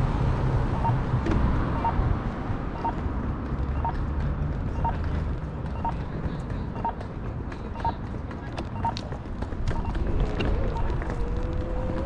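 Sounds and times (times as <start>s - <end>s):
wind rumble: 0.0s - 5.5s, 9.6s - 12.0s
traffic rumble: 0.0s - 12.0s.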